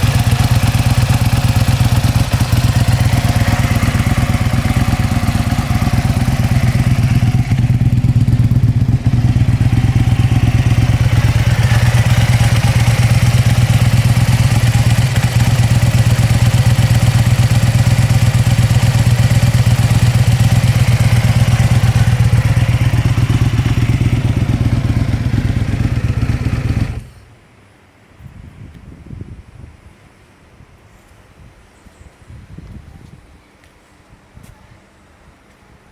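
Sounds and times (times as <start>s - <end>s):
motorcycle engine idling: 0.0s - 27.3s.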